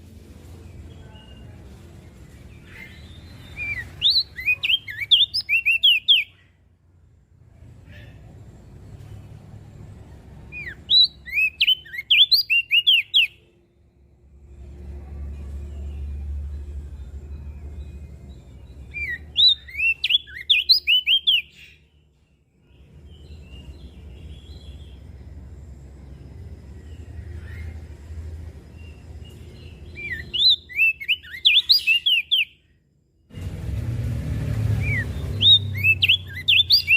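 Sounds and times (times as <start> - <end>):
bird chirping song: 0.0 - 33.1, 33.7 - 36.9
low rumble: 13.7 - 19.4, 33.3 - 36.3.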